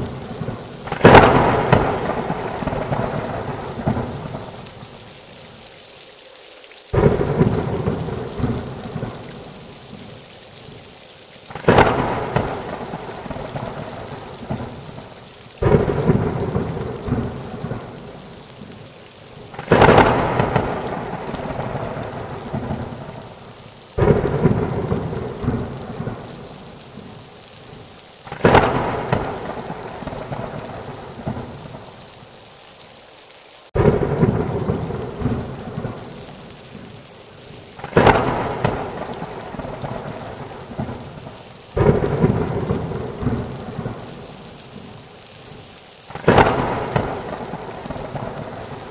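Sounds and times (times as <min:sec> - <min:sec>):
thunder claps rolling: 0:00.0 - 0:04.6, 0:07.0 - 0:09.3, 0:11.5 - 0:15.0, 0:15.6 - 0:18.1, 0:19.6 - 0:23.2, 0:24.0 - 0:26.4, 0:28.3 - 0:31.7, 0:33.8 - 0:36.1, 0:37.8 - 0:41.2, 0:41.8 - 0:44.1, 0:46.1 - 0:48.9
steady rain: 0:00.0 - 0:48.9.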